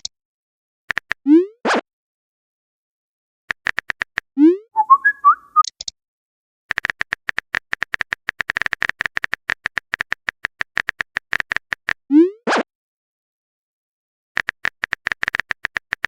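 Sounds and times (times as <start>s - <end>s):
keyboard typing clicks: 3.5s - 5.9s, 6.7s - 12.0s, 14.4s - 16.0s
rising pop: 4.5s - 5.4s.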